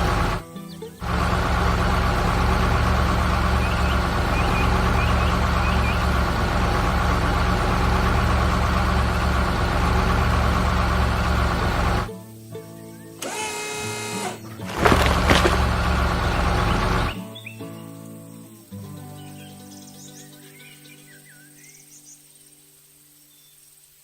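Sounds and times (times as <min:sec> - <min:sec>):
heavy vehicle engine running: 0:00.0 - 0:00.4, 0:01.0 - 0:12.1, 0:14.7 - 0:17.2
faint high chirps: 0:02.7 - 0:07.8.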